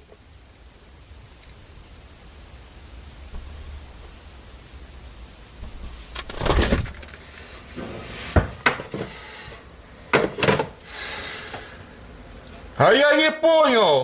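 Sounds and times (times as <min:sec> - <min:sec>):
rustling: 0:03.2 - 0:09.8.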